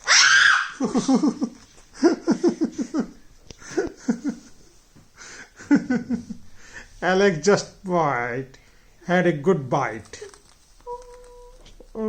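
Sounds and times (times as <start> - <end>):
person laughing: 0.8 - 4.5.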